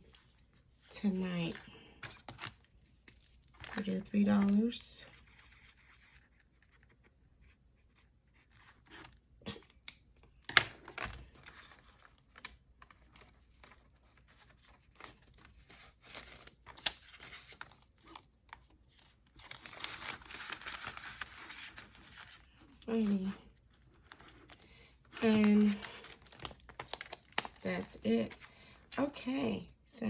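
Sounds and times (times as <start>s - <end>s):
paper rustling and crinkling: 10.5s - 28.4s.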